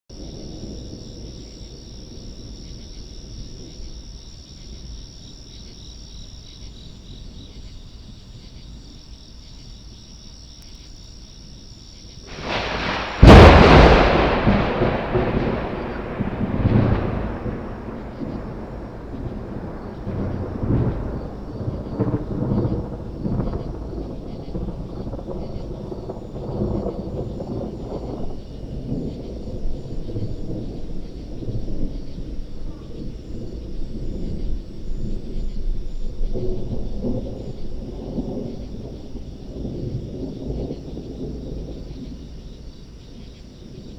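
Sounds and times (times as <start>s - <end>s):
rolling thunder: 0.1s - 5.2s, 12.3s - 43.9s
hissing electrical crackle: 12.3s - 25.3s
loud thunderclap: 12.3s - 43.0s.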